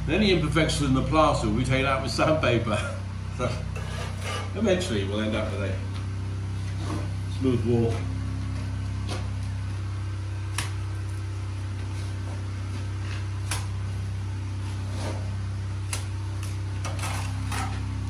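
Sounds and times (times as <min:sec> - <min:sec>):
low hum: 0:00.0 - 0:18.0
scrape: 0:03.8 - 0:04.6, 0:14.6 - 0:15.4, 0:16.8 - 0:17.8.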